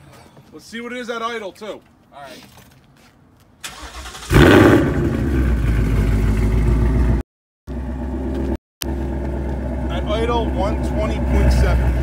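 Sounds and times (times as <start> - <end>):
car engine starting and idling: 3.6 - 12.0.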